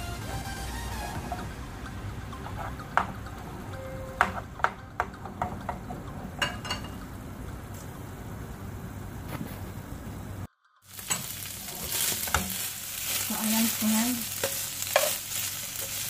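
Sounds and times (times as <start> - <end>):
steady low hum: 0.0 - 10.5
chicken frying in oil: 10.8 - 16.0
spatula scraping frying pan: 10.9 - 16.0.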